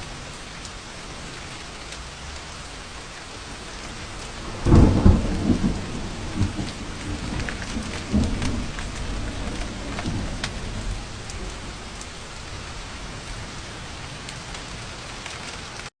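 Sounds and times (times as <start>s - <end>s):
heavy rain: 0.0s - 15.9s
rolling thunder: 3.6s - 15.0s.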